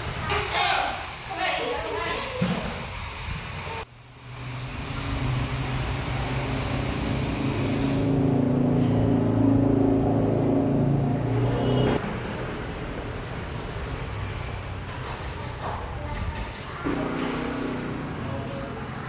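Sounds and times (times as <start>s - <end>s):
engine humming: 4.3s - 15.0s.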